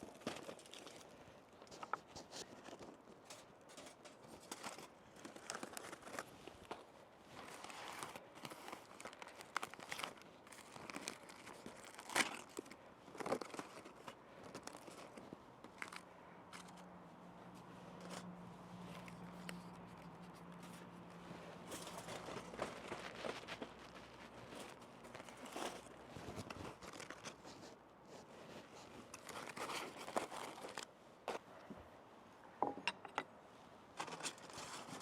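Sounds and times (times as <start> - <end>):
aluminium foil crinkling and tearing: 0.0 - 6.8, 7.4 - 16.9, 21.6 - 27.6, 29.1 - 30.9, 34.0 - 35.0.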